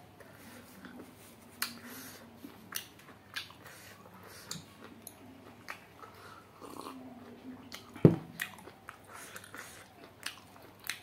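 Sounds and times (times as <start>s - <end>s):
chewing with wet smacks: 2.4s - 11.0s.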